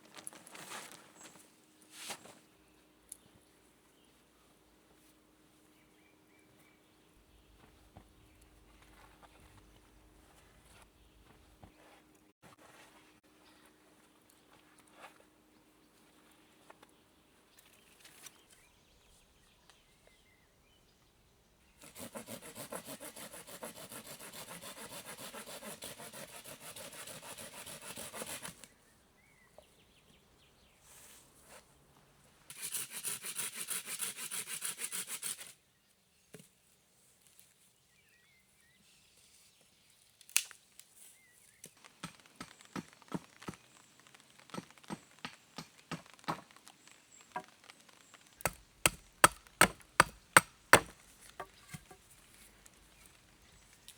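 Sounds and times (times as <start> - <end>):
hand saw cutting wood: 21.8 - 28.6, 32.5 - 35.5, 48.4 - 52.0
knocks on wood: 48.5 - 52.0.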